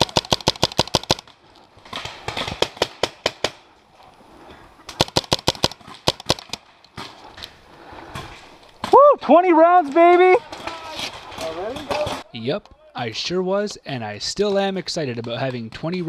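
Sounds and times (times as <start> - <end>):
paintball marker rapid shots: 0.0 - 1.3, 1.9 - 3.6, 4.9 - 7.2.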